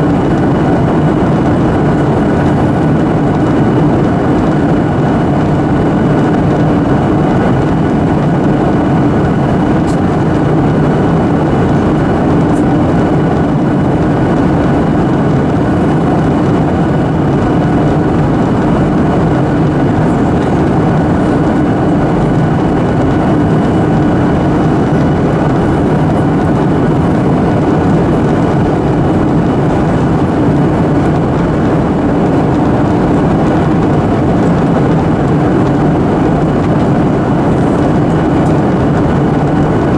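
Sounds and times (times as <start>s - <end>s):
airliner cabin engine roar: 0.0s - 39.9s.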